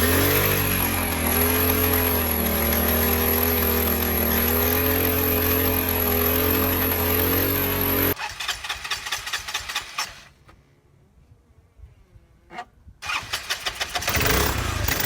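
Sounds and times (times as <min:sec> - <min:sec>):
scooter engine idling fast: 0:00.0 - 0:10.1, 0:13.0 - 0:15.0.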